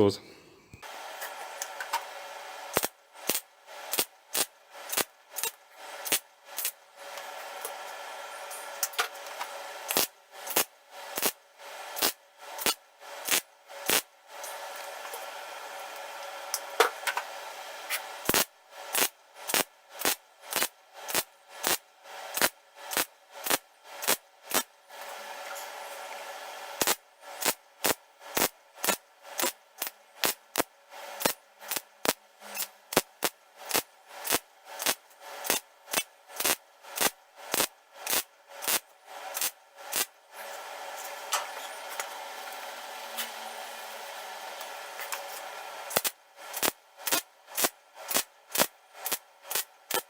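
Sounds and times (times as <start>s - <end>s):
welder tacking sheet metal: 2.7s - 6.8s, 8.8s - 11.4s, 12.0s - 14.6s, 17.9s - 24.7s, 26.8s - 40.1s, 44.6s - 50.0s.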